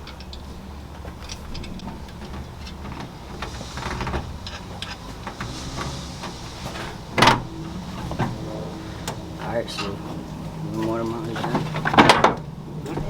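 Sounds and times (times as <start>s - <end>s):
steady low hum: 0.0s - 13.0s
loud metal clank: 1.4s - 10.6s.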